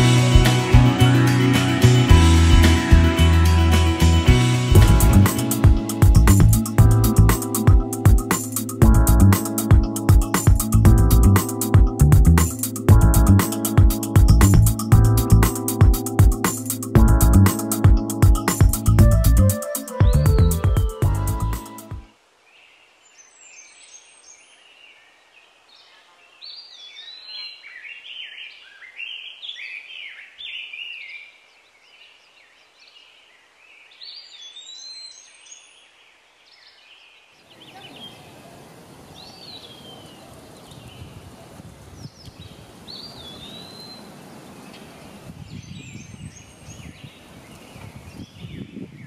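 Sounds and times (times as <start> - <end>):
rushing noise: 0.0 - 7.4
birds singing and chirping: 18.9 - 21.8, 39.2 - 41.2, 42.0 - 49.0.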